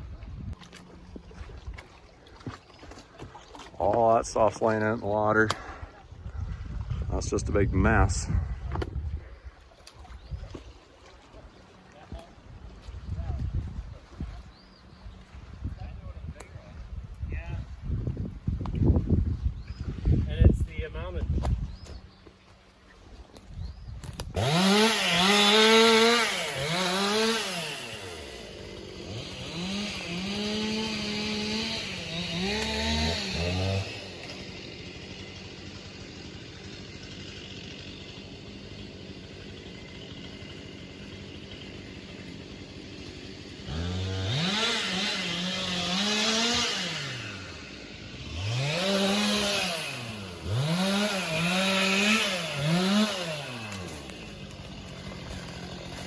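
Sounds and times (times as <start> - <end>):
chainsaw revving and idling: 24.1 - 56.0.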